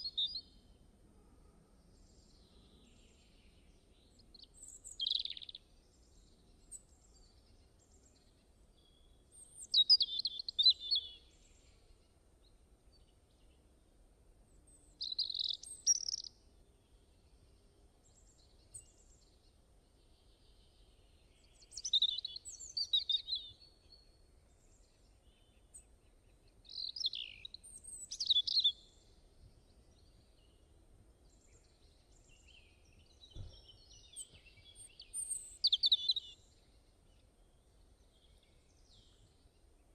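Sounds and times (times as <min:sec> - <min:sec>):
songbird twittering: 0:00.0 - 0:00.5, 0:04.1 - 0:05.6, 0:09.0 - 0:11.4, 0:14.9 - 0:16.4, 0:21.3 - 0:23.8, 0:26.6 - 0:29.1, 0:31.6 - 0:36.5.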